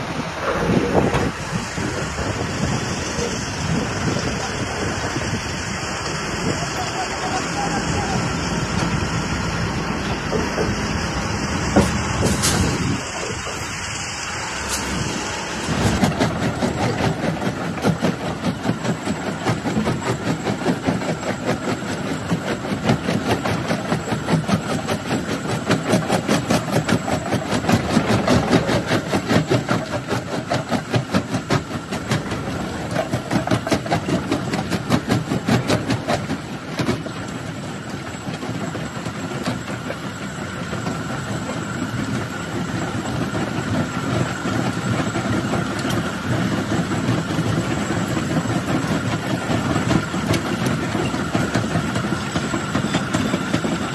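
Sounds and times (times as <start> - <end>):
mechanical drone: 0.0 - 53.9.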